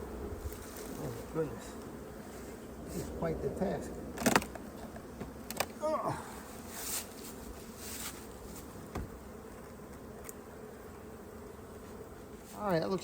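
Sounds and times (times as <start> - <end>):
bees buzzing: 0.0 - 13.0
light knocks of hive equipment: 4.1 - 11.1.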